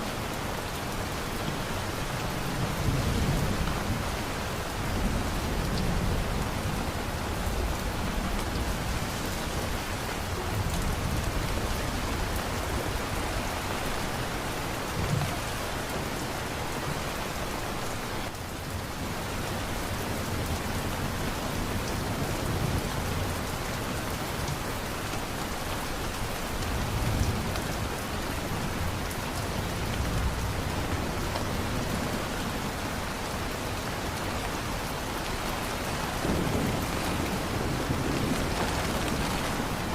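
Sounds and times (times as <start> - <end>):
heavy rain falling: 0.0 - 39.9
thunder rumbling: 36.0 - 39.9.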